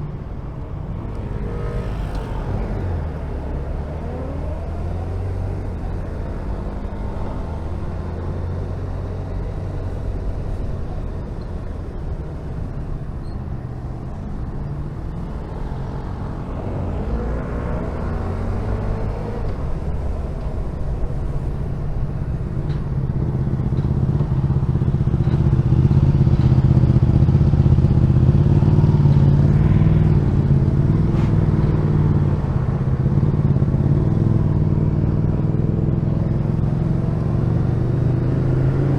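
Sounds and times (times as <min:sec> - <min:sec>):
wind and road noise: 0:00.0 - 0:38.9
motorcycle engine revving: 0:15.4 - 0:38.9.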